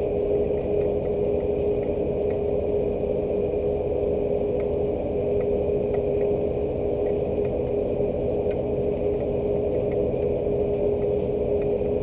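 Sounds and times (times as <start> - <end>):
steady machine hum: 0.0 - 12.0
faint ticks: 0.5 - 2.5, 4.5 - 12.0.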